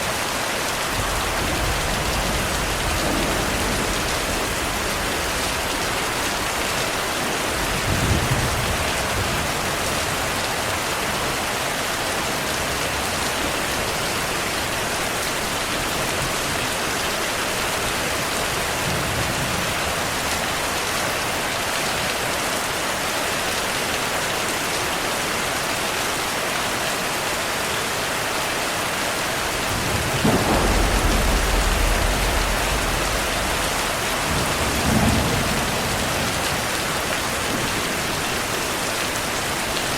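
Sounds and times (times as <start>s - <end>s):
heavy rain falling: 0.0s - 39.9s
thunder rumbling: 0.9s - 6.8s, 7.4s - 10.4s, 29.4s - 38.5s.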